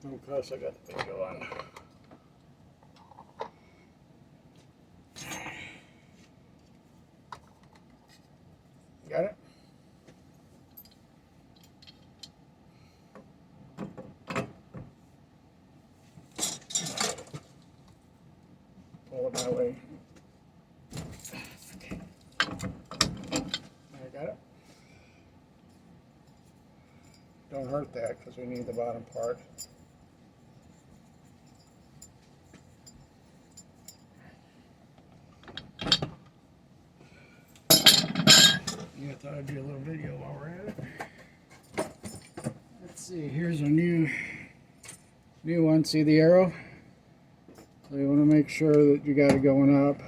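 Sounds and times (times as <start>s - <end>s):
metal tools clinking and clanking: 16.3s - 17.5s, 19.3s - 19.7s, 21.3s - 23.7s, 28.5s - 30.0s, 37.7s - 39.0s.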